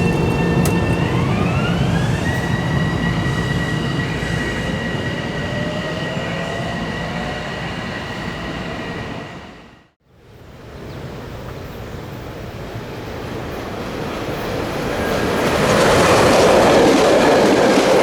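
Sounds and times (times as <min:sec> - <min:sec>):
train wheels rumbling on rails: 0:00.0 - 0:09.4, 0:11.1 - 0:18.0
train whine: 0:00.0 - 0:10.0.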